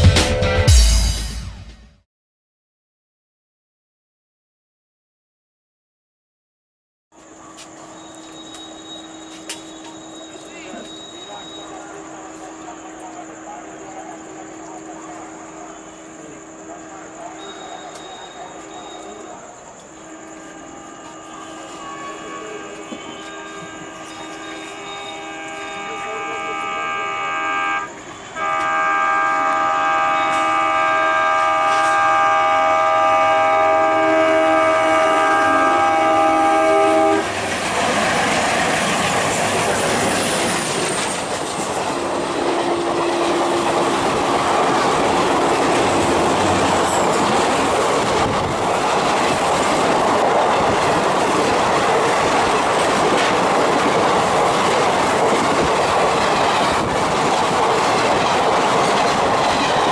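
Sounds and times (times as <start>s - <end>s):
locomotive horn blast: 14.4s - 37.4s, 42.1s - 44.4s
wheels clattering over rail joints: 37.3s - 59.9s.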